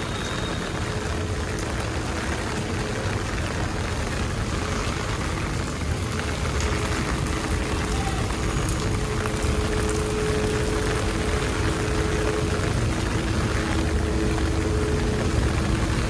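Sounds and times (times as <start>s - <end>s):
rain falling: 0.0s - 16.0s
low two-note hum: 8.7s - 16.0s.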